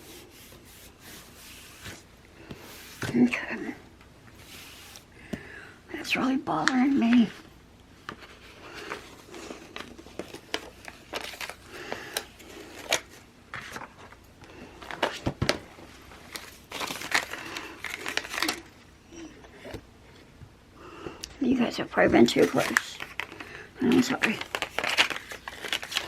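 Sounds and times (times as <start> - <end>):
paper crinkling and rustling: 8.0 - 18.8, 22.3 - 26.0.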